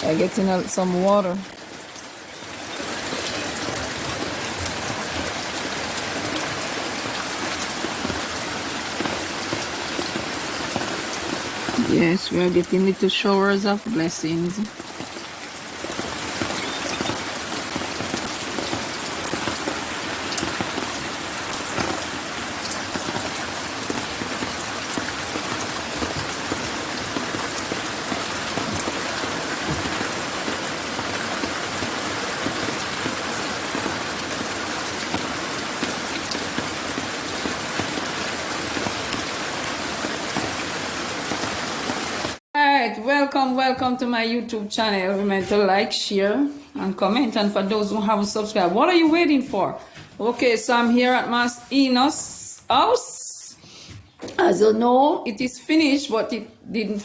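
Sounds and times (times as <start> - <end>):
light rain hiss: 0.0 - 42.4
raindrops ticking: 0.0 - 42.4.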